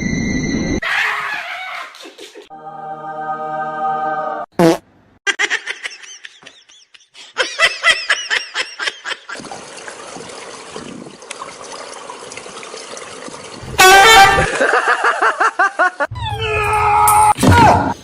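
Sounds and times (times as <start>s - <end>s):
high-pitched laughter: 0.8s - 2.5s, 14.1s - 16.6s.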